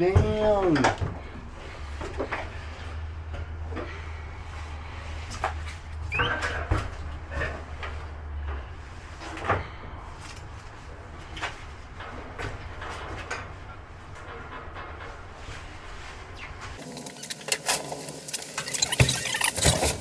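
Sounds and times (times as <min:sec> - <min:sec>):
boxes knocking and scraping: 0:16.8 - 0:20.0
short rising squeak: 0:16.8 - 0:20.0.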